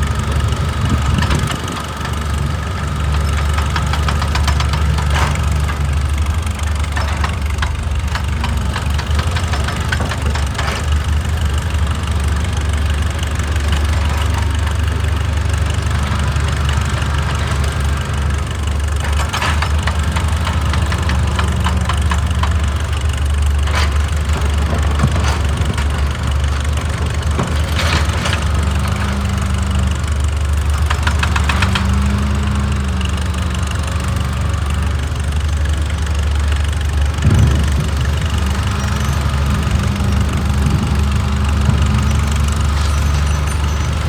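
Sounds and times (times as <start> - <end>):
excavator diesel engine humming: 0.0 - 44.0.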